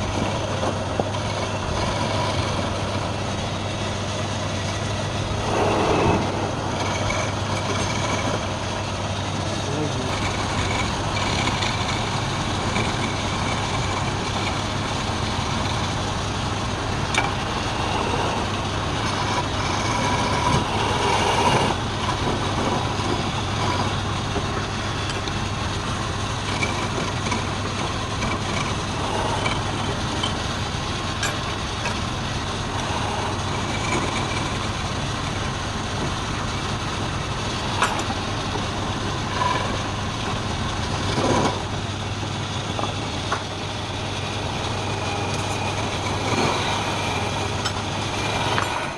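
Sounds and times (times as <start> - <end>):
wood lathe motor hum: 0.0 - 48.9
lathe hiss: 1.9 - 9.2, 10.1 - 22.0.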